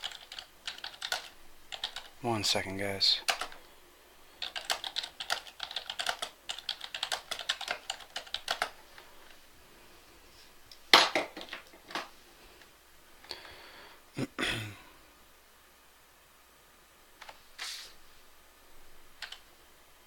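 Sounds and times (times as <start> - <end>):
typing on computer keyboard: 0.0 - 2.1, 3.3 - 3.6, 4.4 - 8.8, 19.2 - 19.5.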